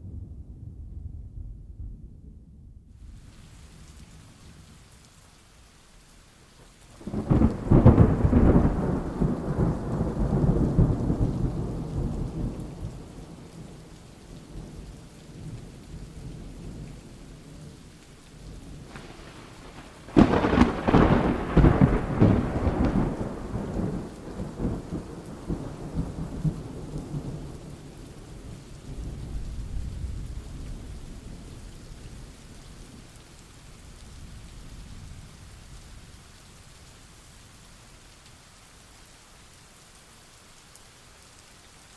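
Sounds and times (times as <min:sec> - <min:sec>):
thunder rumbling: 0:00.0 - 0:04.7, 0:07.0 - 0:17.8, 0:18.4 - 0:33.1
steady rain: 0:02.8 - 0:41.9
thunder crack: 0:07.0 - 0:13.1, 0:18.8 - 0:27.3.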